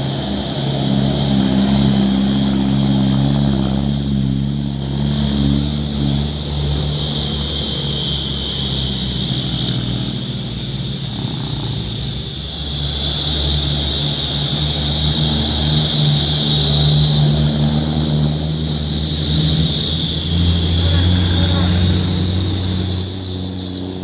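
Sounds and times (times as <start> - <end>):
steady high whine: 0.0 - 24.0
truck diesel engine running: 0.0 - 24.0.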